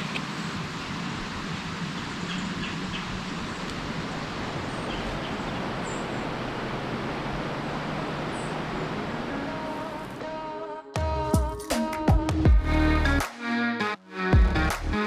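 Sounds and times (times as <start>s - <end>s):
outdoor background noise: 0.0s - 10.5s.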